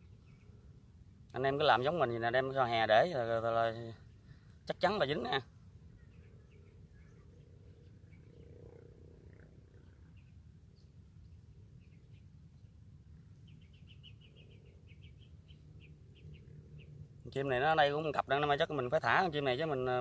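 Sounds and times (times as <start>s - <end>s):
low steady rumble: 0.0s - 20.0s
faint small bird chirps: 3.7s - 18.2s.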